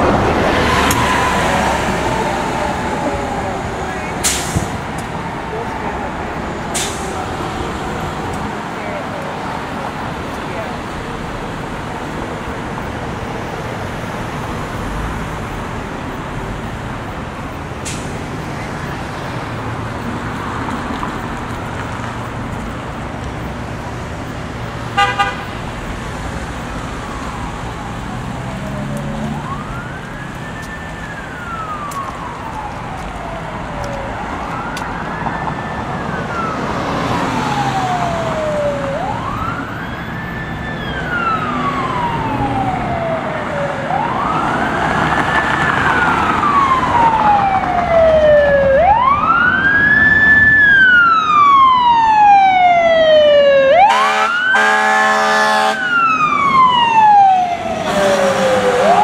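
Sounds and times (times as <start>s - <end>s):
emergency siren wailing: 0.0s - 23.9s, 25.0s - 59.0s
traffic noise: 0.0s - 59.0s
loud horn blast: 25.0s - 25.6s, 53.8s - 55.9s, 57.8s - 59.0s.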